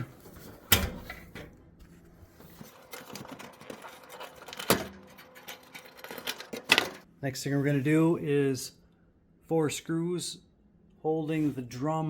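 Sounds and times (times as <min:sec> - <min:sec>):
wiring rustling: 0:00.0 - 0:07.1.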